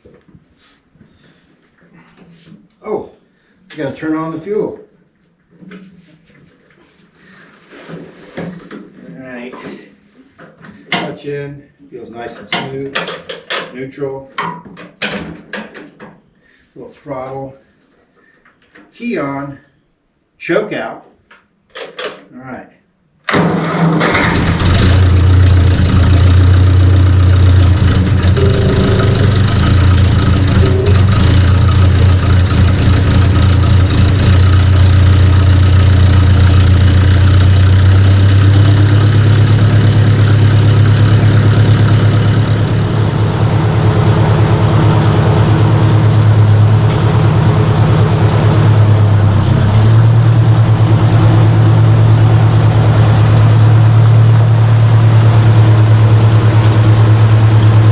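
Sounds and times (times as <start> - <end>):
tractor engine starting and running: 23.3 - 57.9.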